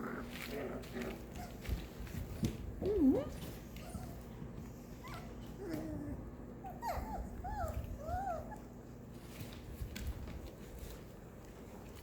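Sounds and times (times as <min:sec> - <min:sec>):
low bumps of puppies playing: 0:00.0 - 0:12.0
puppies whimpering and yipping: 0:05.0 - 0:08.8.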